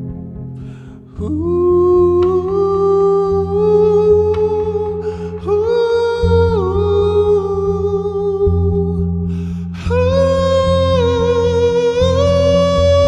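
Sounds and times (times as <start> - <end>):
low sustained drone: 0.0 - 13.0
person singing long ooh: 1.1 - 13.0.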